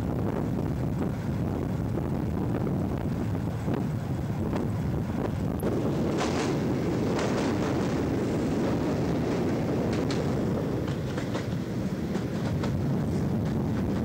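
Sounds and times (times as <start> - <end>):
train rumbling on track: 0.0 - 14.0
wheels clicking over rail joints: 5.6 - 14.0.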